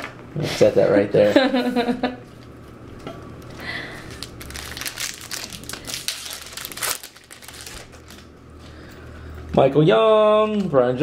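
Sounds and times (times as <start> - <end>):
foil wrapper crinkling: 3.6 - 8.3.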